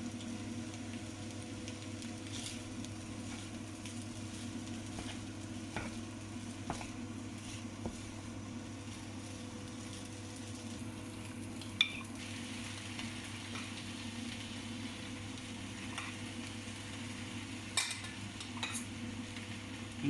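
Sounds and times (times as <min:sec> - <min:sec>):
constant low hum: 0:00.0 - 0:20.0
food sizzling on a griddle: 0:00.0 - 0:20.0.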